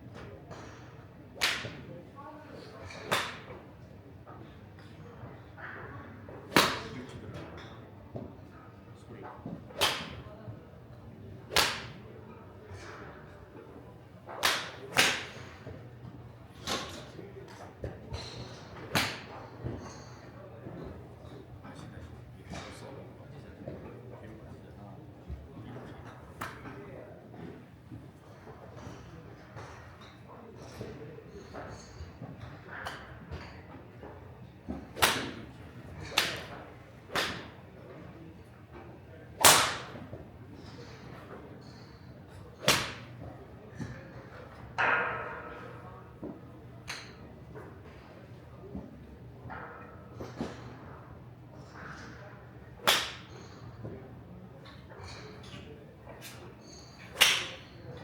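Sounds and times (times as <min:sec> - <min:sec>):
golf clubs striking balls: 0:34.7 - 0:38.2, 0:39.4 - 0:48.1, 0:50.1 - 0:54.0, 0:54.6 - 0:58.0.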